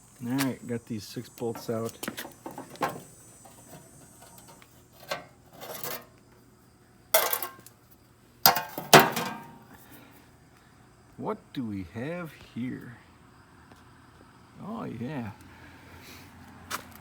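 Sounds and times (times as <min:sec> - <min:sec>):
metal clanks and clinks: 0:01.5 - 0:06.1, 0:07.2 - 0:07.7, 0:08.5 - 0:09.7
sharp ringing metal knocks: 0:08.5 - 0:09.7.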